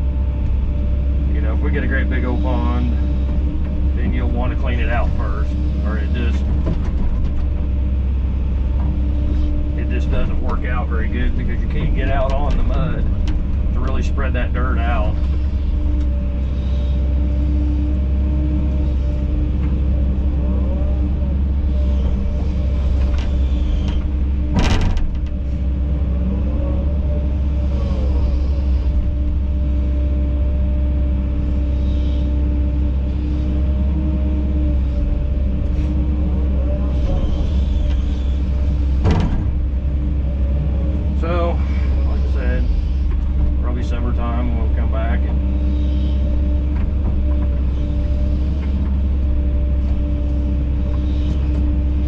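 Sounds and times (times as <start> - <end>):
excavator diesel engine running: 0.0 - 52.0
sharp knocks: 23.9 - 25.4, 39.0 - 39.7.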